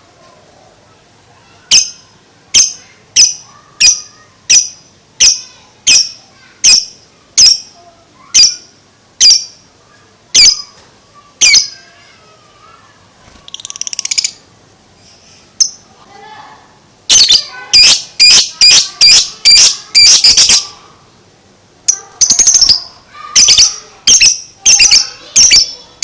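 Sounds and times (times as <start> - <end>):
bird chattering trill: 1.7 - 9.6, 11.4 - 11.9, 13.4 - 14.5, 17.1 - 20.8, 21.9 - 26.0
lovebird shrill calls: 17.1 - 20.7, 22.2 - 25.8.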